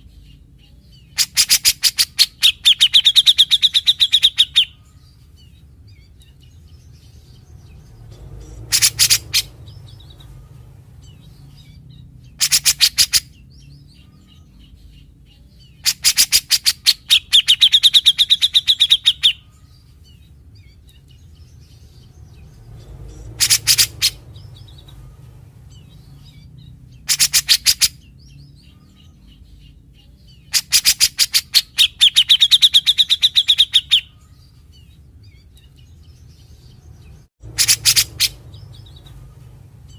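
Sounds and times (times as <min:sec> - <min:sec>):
bird fast rattling trill: 0:37.5 - 0:38.4.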